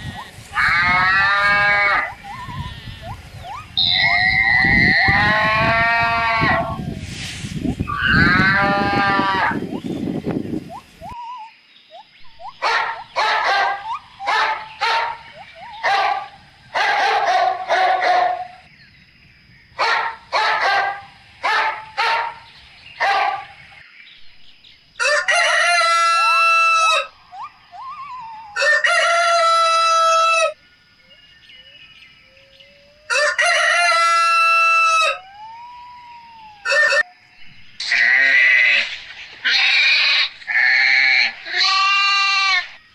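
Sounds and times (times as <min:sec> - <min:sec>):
rooster crowing: 0:00.1 - 0:03.2, 0:03.8 - 0:06.8, 0:25.0 - 0:27.2, 0:28.2 - 0:30.6, 0:33.1 - 0:35.5, 0:36.4 - 0:37.1.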